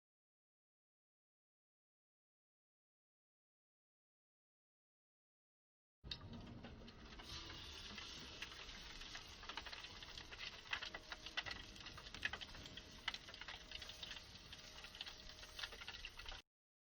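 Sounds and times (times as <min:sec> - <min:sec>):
light clicking and crackling: 0:06.1 - 0:16.4.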